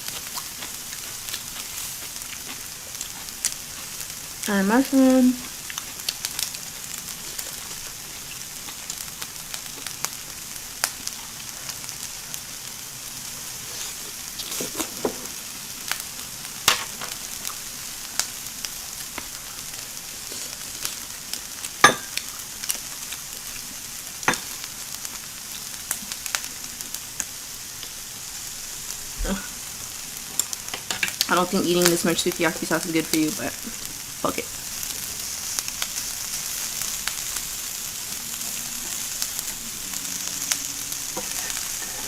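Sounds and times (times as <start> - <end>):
food sizzling on a grill: 0.0 - 42.0.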